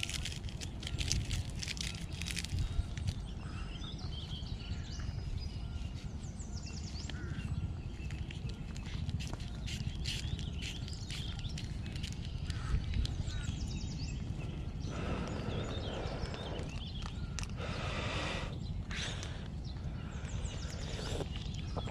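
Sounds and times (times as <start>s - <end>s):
paper sachet tearing: 0.0s - 3.2s
birds chirping: 0.0s - 21.9s
wind rumble on microphone: 0.0s - 21.9s.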